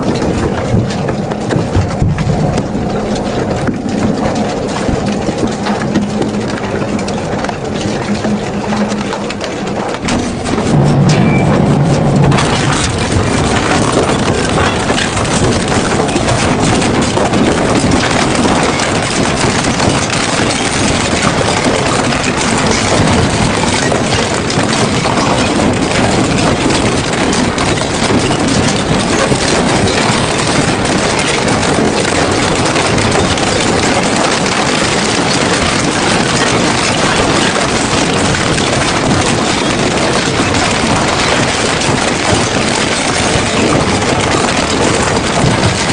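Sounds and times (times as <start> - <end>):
metal shredder grinding scrap metal: 0.0 - 45.9.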